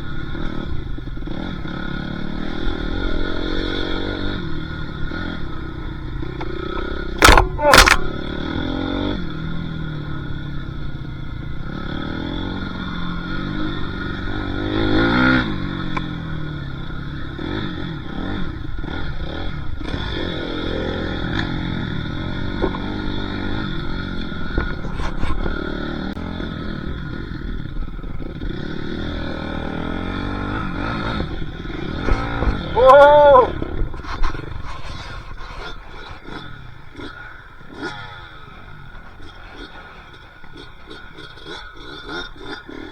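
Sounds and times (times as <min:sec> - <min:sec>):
dirt bike engine revving: 0:00.0 - 0:42.9
sharp knocks: 0:07.2 - 0:08.0.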